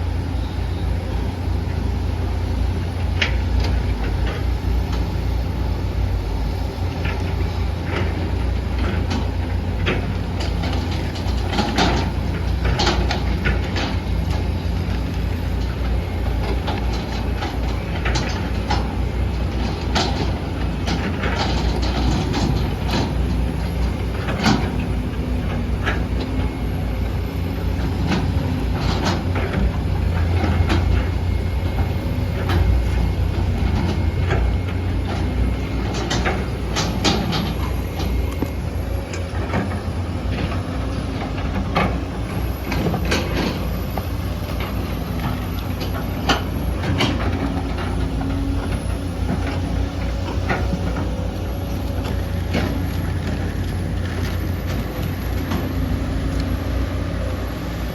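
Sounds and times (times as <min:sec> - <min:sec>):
excavator diesel engine running: 0:00.0 - 0:57.9
machine knocks and clanks: 0:15.6 - 0:26.6, 0:27.8 - 0:55.9.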